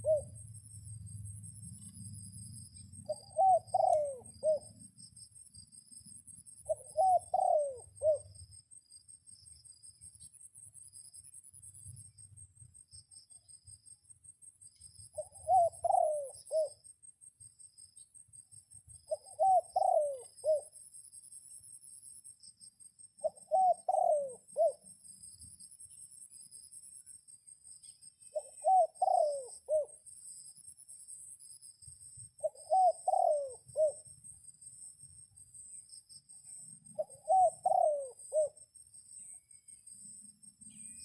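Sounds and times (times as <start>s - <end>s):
dove cooing: 0.0s - 0.4s, 3.0s - 4.9s, 6.6s - 8.4s, 15.2s - 16.8s, 19.1s - 20.8s, 23.2s - 24.9s, 28.3s - 30.0s, 32.4s - 34.1s, 36.9s - 38.6s
high insect drone: 0.0s - 41.0s.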